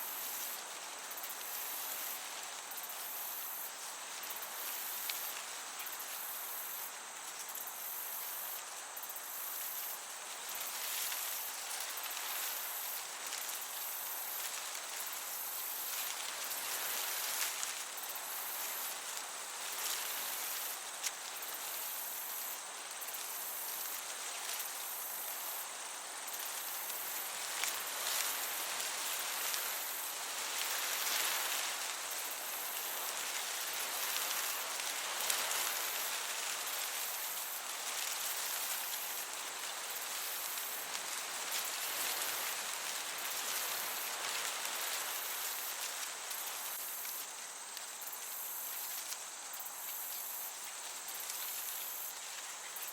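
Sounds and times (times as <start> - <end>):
crickets chirping: 0.0 - 52.9
soft breeze hiss: 0.0 - 52.9.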